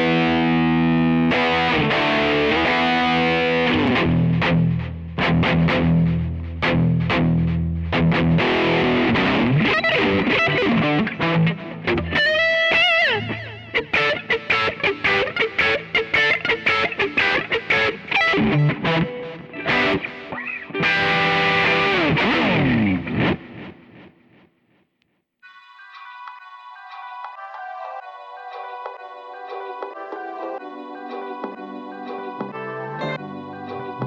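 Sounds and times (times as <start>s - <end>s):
distorted electric guitar: 0.0s - 24.5s.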